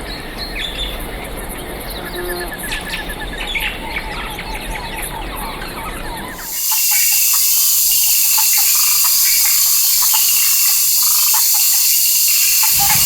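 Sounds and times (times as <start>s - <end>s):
high-pitched wild ambience hiss: 6.2s - 13.0s.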